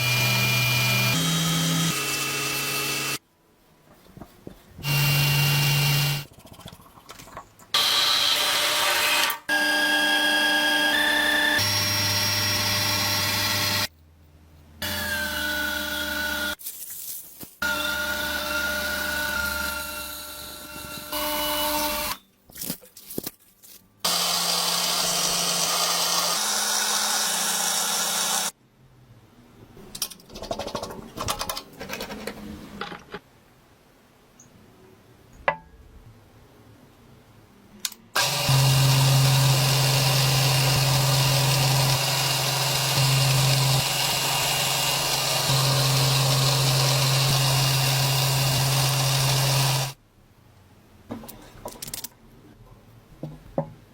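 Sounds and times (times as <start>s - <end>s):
power tools whining: 0.0s - 3.2s, 38.2s - 50.0s
parts clicking and knocking: 29.8s - 33.3s, 51.1s - 52.2s.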